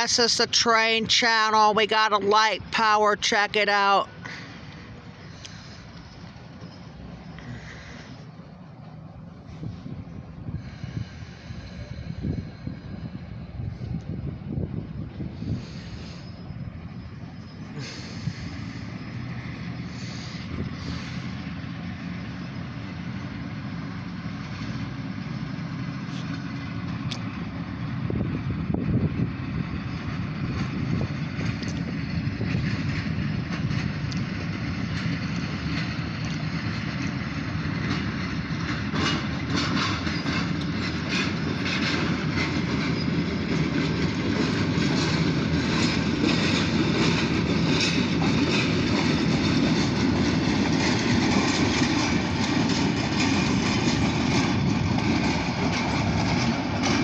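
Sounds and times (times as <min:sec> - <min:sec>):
diesel engines rumbling: 0:00.0 - 0:57.0
wheels clicking over rail joints: 0:13.3 - 0:57.0.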